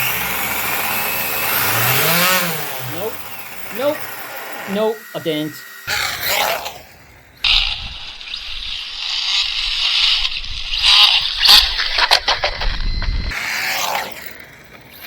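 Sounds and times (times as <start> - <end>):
electric motor whirring hiss: 0.0 - 15.0
sharp clicks: 7.4 - 13.4.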